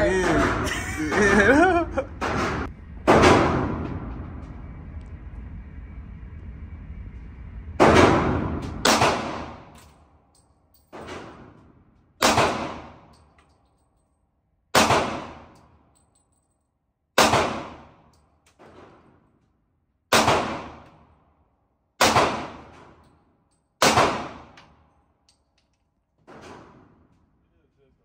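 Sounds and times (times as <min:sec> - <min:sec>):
distant gunshot: 0:07.8 - 0:09.7, 0:12.2 - 0:13.0, 0:14.8 - 0:15.5, 0:17.2 - 0:17.9, 0:20.1 - 0:20.8, 0:22.0 - 0:22.7, 0:23.8 - 0:24.6.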